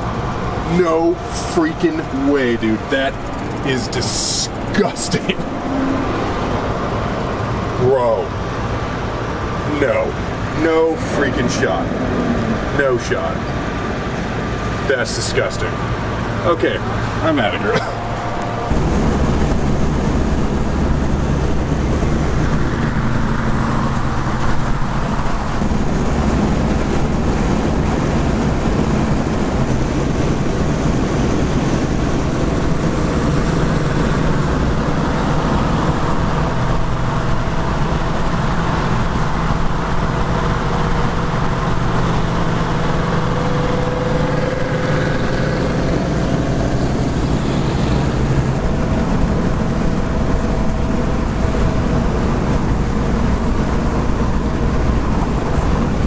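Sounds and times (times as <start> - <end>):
car engine drone: 0.0 - 56.0
road noise: 0.0 - 56.0
wind noise: 18.2 - 56.0.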